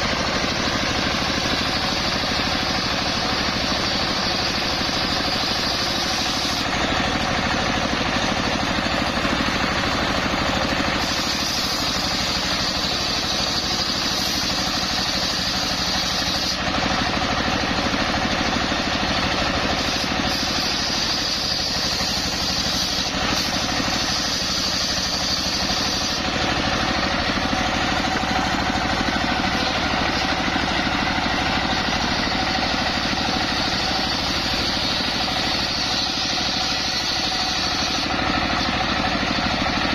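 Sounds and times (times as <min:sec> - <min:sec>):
circular sawmill running: 0:00.0 - 0:39.9
high saw whine: 0:00.0 - 0:39.9.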